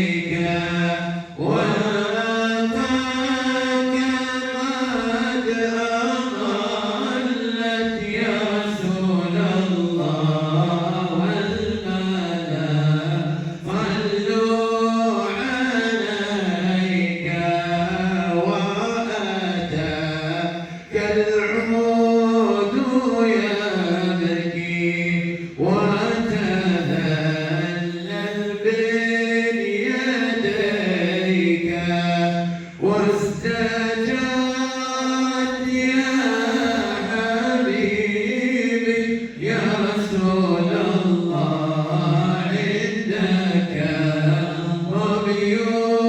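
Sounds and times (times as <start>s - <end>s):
breaths: 13.4s - 13.7s, 20.6s - 20.9s, 25.2s - 25.6s, 32.4s - 32.8s.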